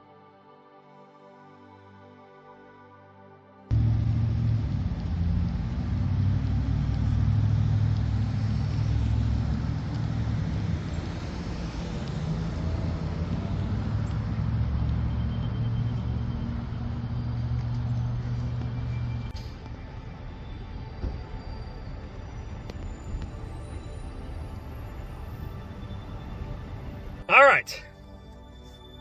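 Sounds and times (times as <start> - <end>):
motor vehicle engine rumble: 3.7 - 25.0
road noise: 3.7 - 29.0.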